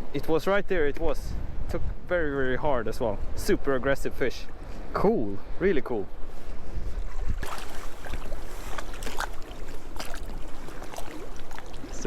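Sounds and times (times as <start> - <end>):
wind rumble on microphone: 0.0 - 12.0
sea water splashing in shallows: 7.4 - 12.0.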